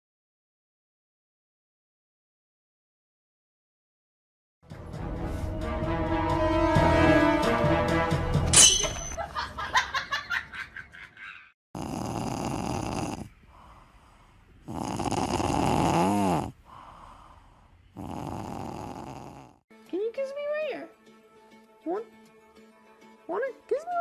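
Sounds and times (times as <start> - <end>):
music: 4.6 - 9.1, 19.7 - 24.0
person snoring: 11.8 - 19.6.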